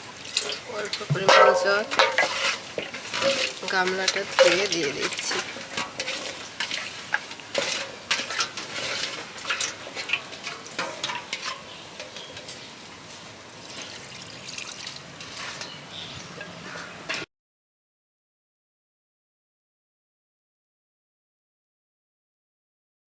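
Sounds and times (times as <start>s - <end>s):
water pouring: 0.0s - 11.8s, 12.4s - 16.5s
chicken sizzling in pot: 0.0s - 17.3s
spoon scraping pot: 0.4s - 12.7s.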